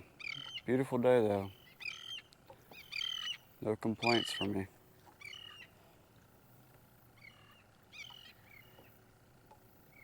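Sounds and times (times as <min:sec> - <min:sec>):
bird calling faintly: 0:00.1 - 0:00.8, 0:01.4 - 0:10.0.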